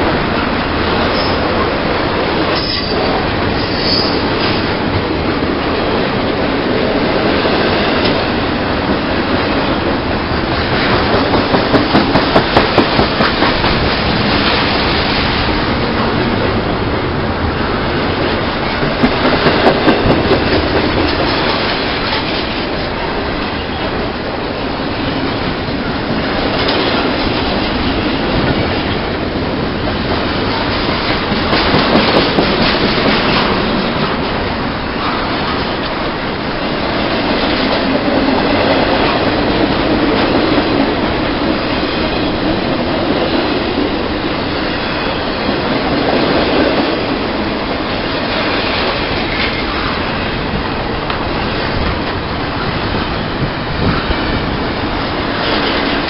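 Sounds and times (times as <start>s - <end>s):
train wheels on rails: 0.0s - 56.0s
sharp rail clicks: 10.6s - 16.2s.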